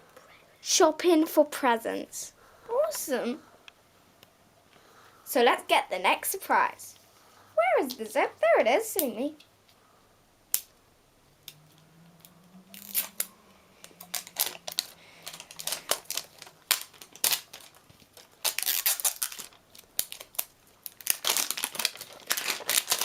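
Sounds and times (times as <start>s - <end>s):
toy packaging torn open: 12.7s - 23.0s.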